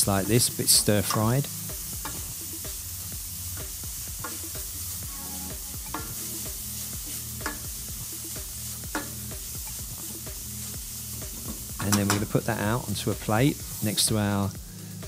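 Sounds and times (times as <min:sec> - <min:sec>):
vegetables sizzling in a pan: 0:00.0 - 0:15.0
spoon knocking against pan: 0:07.4 - 0:07.8, 0:08.9 - 0:09.8.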